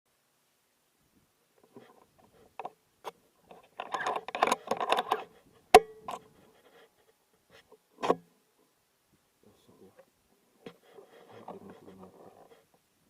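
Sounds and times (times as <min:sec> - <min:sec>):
handling noise rustling and clicking: 0:01.6 - 0:08.2.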